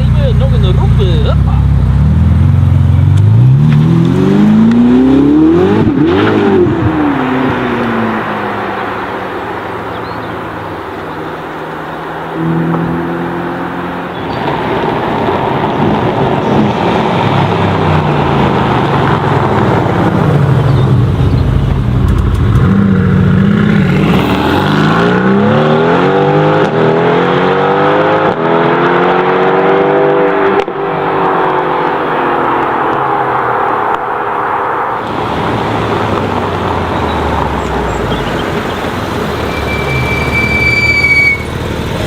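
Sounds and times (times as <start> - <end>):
sports car engine accelerating: 0.0 - 39.6.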